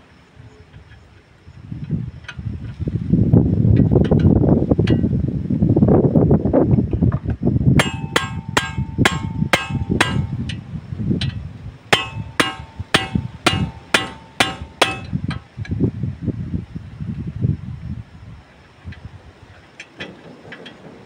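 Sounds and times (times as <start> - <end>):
hammer striking metal: 7.8 - 10.7, 11.9 - 15.4.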